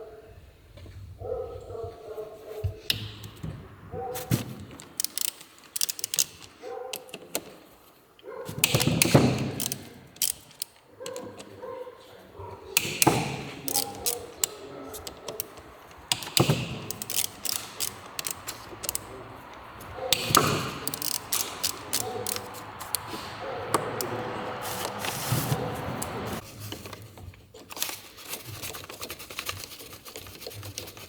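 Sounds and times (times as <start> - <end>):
tools and metal parts clicking: 2.9 - 7.6, 8.5 - 11.5, 12.8 - 26.4.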